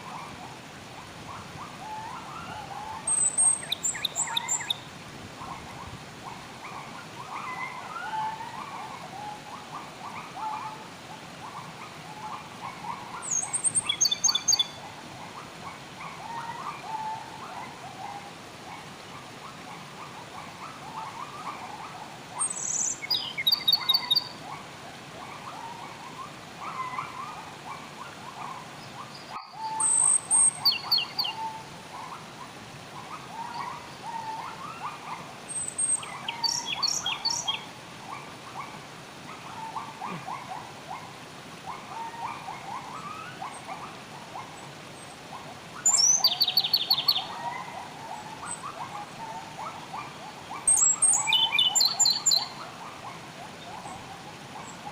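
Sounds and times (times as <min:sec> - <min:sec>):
birds chattering: 0:40.0 - 0:40.5, 0:45.8 - 0:47.4, 0:48.1 - 0:52.6.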